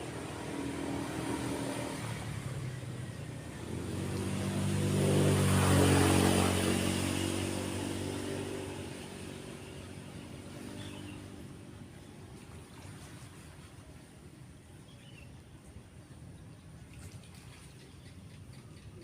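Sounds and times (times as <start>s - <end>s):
motor vehicle passing by: 0.0s - 14.2s.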